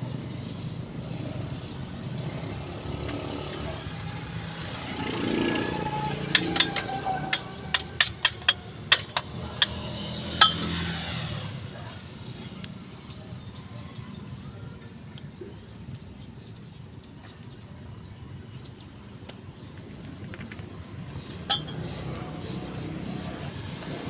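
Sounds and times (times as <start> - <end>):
metal tools clinking: 5.9 - 11.4, 21.5 - 22.0.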